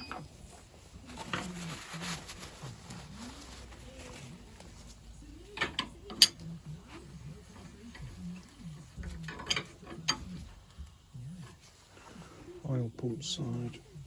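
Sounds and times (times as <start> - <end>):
metal parts clicking and clinking: 5.6 - 6.4, 9.0 - 10.2.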